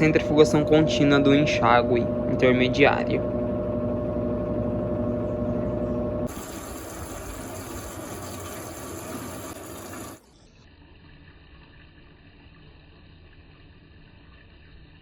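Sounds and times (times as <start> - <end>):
water rushing in washing machine: 0.0 - 10.3
spin motor hum: 0.0 - 10.4.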